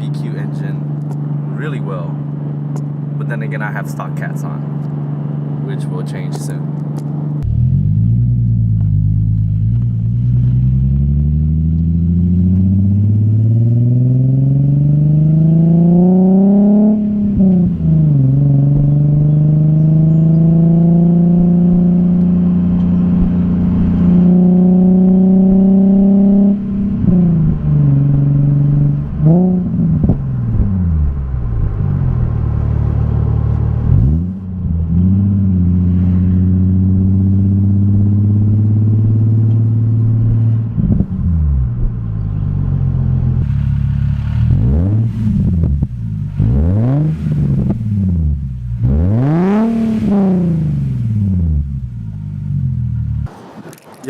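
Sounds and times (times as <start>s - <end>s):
car engine revving: 0.0s - 53.4s.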